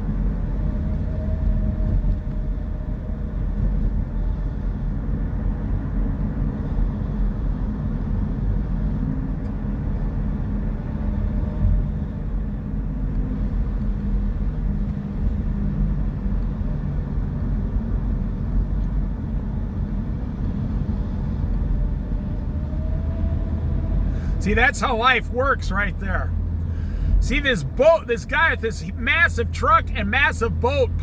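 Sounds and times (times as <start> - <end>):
road rumble: 0.0 - 31.0
vehicle engine drone: 11.8 - 31.0.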